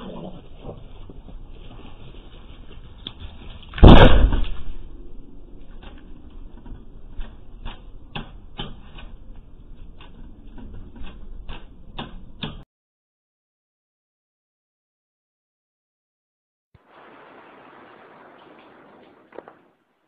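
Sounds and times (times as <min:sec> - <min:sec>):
loud thump: 0:03.8 - 0:04.9.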